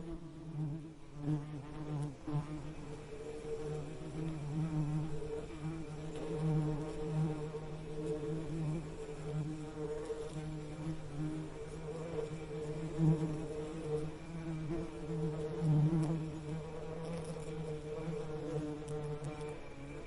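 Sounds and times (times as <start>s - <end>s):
bee buzzing: 0.0s - 20.0s.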